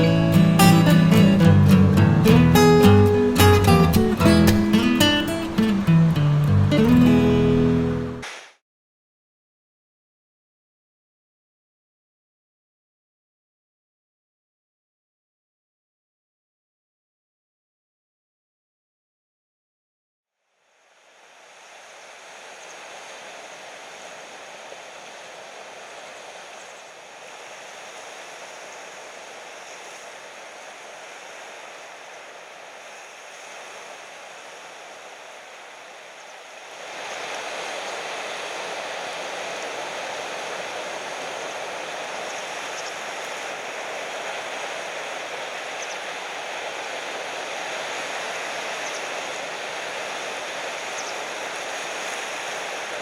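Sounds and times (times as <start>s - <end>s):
ocean surf breaking: 0.0s - 8.6s, 20.7s - 53.0s.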